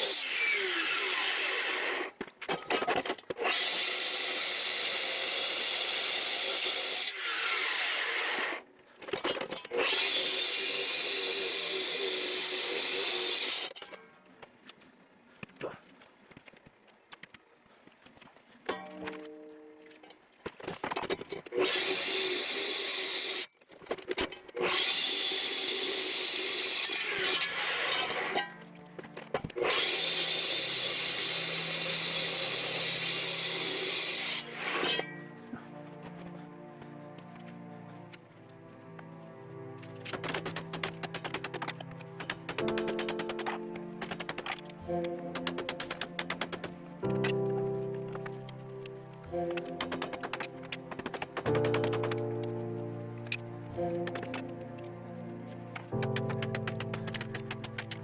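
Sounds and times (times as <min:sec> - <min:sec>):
power tool running: 0:00.0 - 0:02.1, 0:03.4 - 0:08.6, 0:09.7 - 0:13.7, 0:29.4 - 0:35.0, 0:39.8 - 0:47.3, 0:49.2 - 0:52.6.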